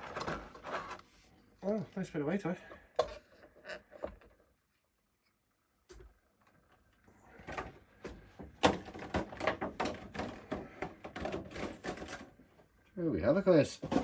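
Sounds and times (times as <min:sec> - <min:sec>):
plastic packaging clicks and rustles: 0:07.4 - 0:12.4.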